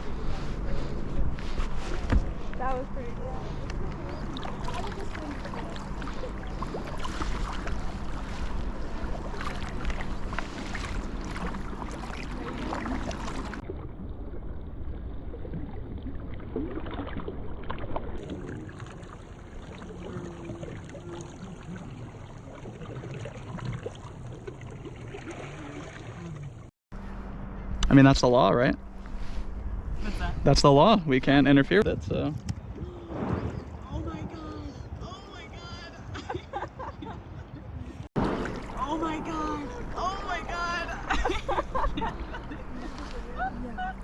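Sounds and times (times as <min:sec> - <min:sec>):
wind rumbling on microphone: 0:00.0 - 0:18.2, 0:28.8 - 0:44.0
water sloshing around kayak: 0:00.0 - 0:26.7, 0:32.1 - 0:44.0
small water splashes: 0:03.2 - 0:26.7, 0:38.1 - 0:44.0.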